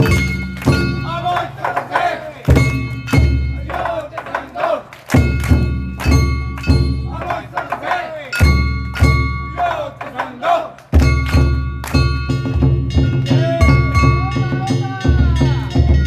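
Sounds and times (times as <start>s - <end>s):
ringing gongs: 0.0s - 1.6s, 2.5s - 10.2s, 11.0s - 16.0s
large drum beating: 0.0s - 16.0s
voices calling: 0.8s - 5.0s, 7.0s - 11.0s, 13.1s - 16.0s.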